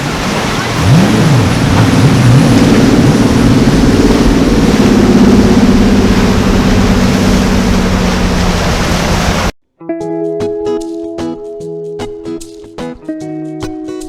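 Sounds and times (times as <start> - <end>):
rushing noise: 0.0 - 9.5
motorboat engines humming: 0.0 - 9.6.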